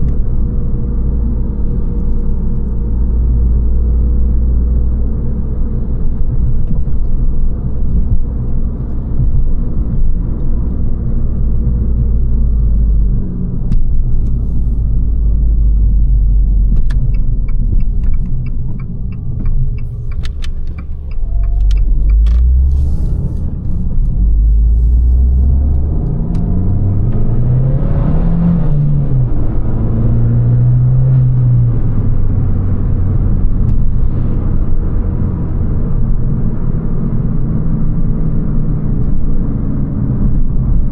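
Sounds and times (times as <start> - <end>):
car engine rumbling: 0.0 - 40.9
even ticks: 16.8 - 22.6.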